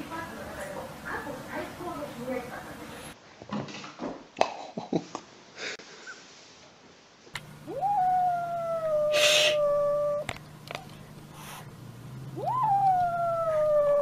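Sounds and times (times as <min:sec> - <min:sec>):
kitten crying: 0:07.6 - 0:10.3, 0:12.3 - 0:14.0
breathy hiss: 0:09.0 - 0:09.8, 0:11.3 - 0:11.8.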